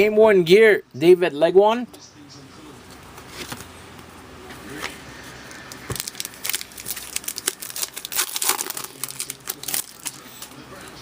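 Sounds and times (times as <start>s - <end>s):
foil wrapper tearing and crinkling: 5.9s - 10.6s.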